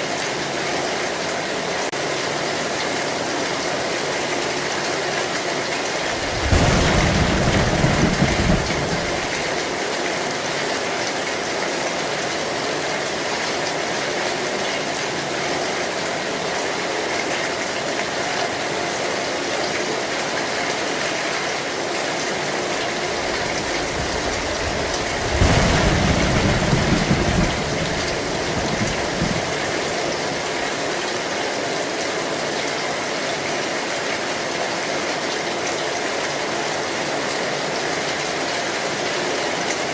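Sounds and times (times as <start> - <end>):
heavy rain on a metal roof: 0.0 - 39.9
low thunder rumbles: 6.0 - 9.8, 22.9 - 30.5.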